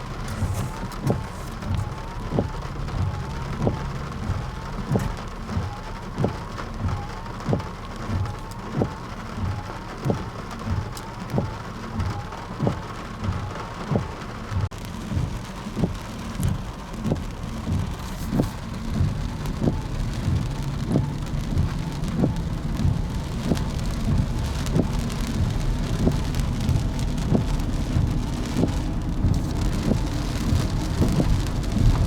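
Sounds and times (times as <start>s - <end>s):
wind rumble on microphone: 0.0s - 32.0s
footsteps walking: 0.3s - 2.0s, 17.1s - 19.2s.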